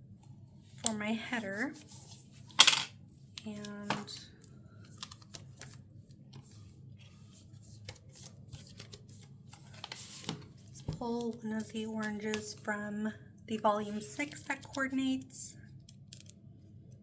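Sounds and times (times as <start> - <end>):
paper rustling: 4.8 - 12.6.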